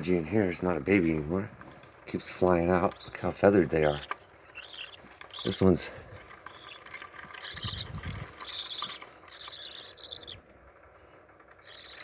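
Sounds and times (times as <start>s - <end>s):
budgerigar chicks chattering: 2.2s - 10.4s, 11.6s - 12.0s.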